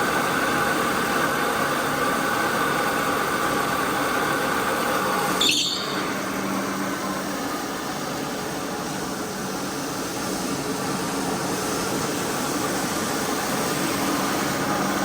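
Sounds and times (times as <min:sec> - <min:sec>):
cleaning machine motor running: 0:00.0 - 0:15.0
high squeal: 0:05.4 - 0:06.2.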